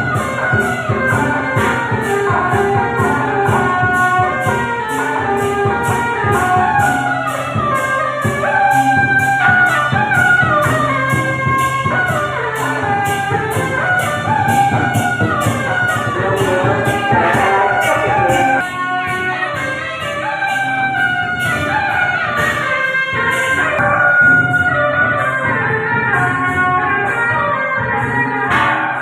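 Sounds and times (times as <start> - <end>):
steady drum beat: 0.0 - 29.0
wind instrument melody: 0.0 - 29.0.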